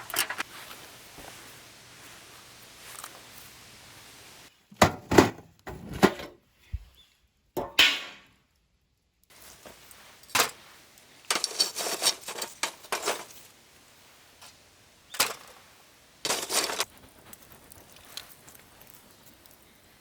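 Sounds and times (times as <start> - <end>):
camp gear clinking: 0.0 - 0.7, 9.3 - 13.5, 15.1 - 15.6, 16.2 - 19.6.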